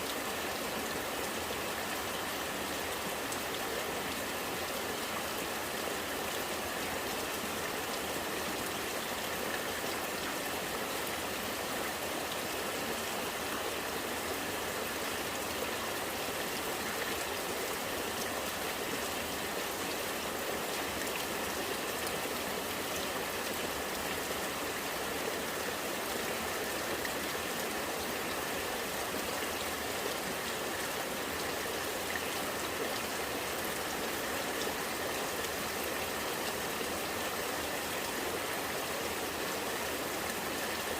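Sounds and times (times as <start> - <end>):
rainwater running and gurgling: 0.0 - 40.9.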